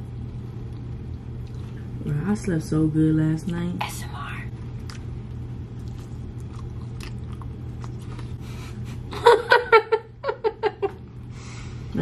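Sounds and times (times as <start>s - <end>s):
people chewing food: 0.0s - 2.0s, 4.6s - 9.1s
steady low hum: 0.0s - 12.0s.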